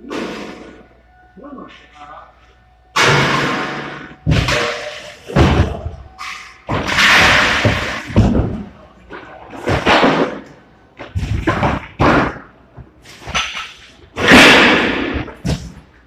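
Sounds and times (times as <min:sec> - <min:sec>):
drywall being smashed: 0:03.0 - 0:06.0, 0:06.7 - 0:08.7, 0:09.5 - 0:10.5, 0:11.1 - 0:12.5, 0:14.2 - 0:15.8.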